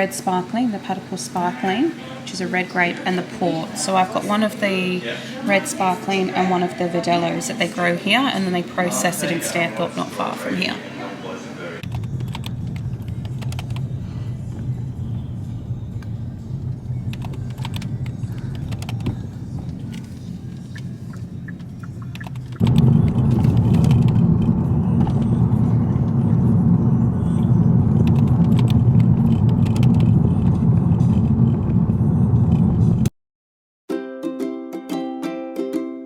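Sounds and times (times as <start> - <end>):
car road noise rumble: 11.8 - 33.1
light clicks and rattles: 17.0 - 20.6.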